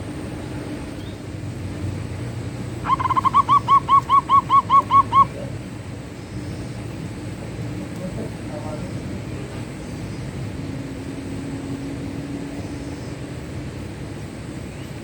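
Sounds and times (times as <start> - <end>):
dove cooing: 2.8 - 5.6.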